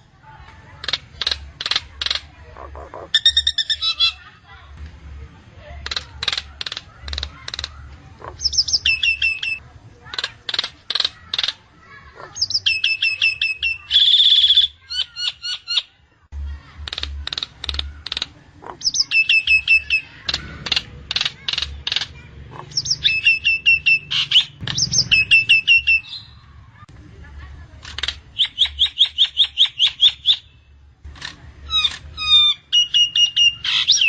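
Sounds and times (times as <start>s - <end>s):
myna calling: 0.7s - 4.3s, 5.8s - 15.9s, 16.8s - 26.9s
bird clicks: 0.8s - 2.3s, 5.8s - 8.6s, 10.1s - 11.6s, 16.8s - 19.0s, 20.2s - 22.9s, 27.8s - 28.8s.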